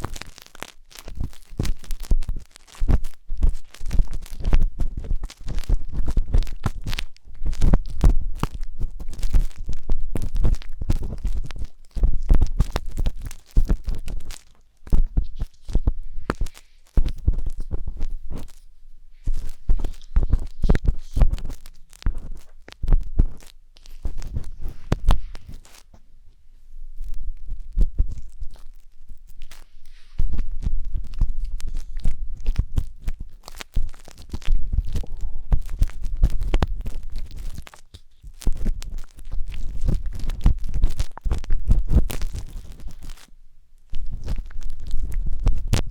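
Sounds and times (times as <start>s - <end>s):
skewer scratching microphone: 0.0s - 26.0s, 27.0s - 43.3s
skewer scraping microphone: 29.3s - 43.2s
deep rumbles: 30.4s - 37.7s.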